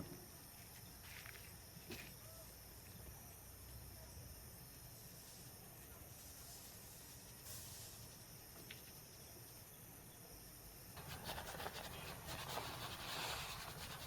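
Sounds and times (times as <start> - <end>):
brief hiss: 6.2 - 8.3.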